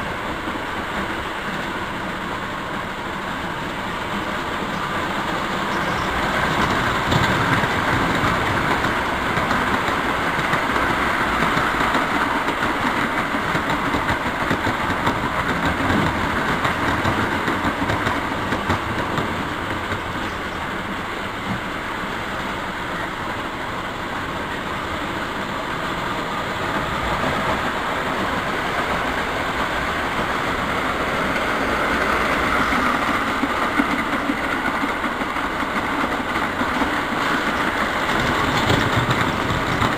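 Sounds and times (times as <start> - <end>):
model train rolling on track: 0.0 - 39.9.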